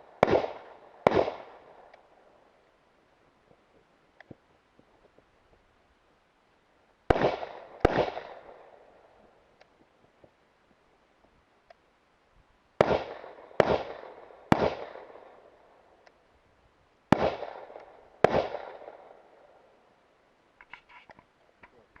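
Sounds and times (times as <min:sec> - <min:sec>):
rifle shots with echo: 0:00.0 - 0:02.4, 0:07.1 - 0:09.3, 0:12.8 - 0:16.0, 0:17.1 - 0:19.7.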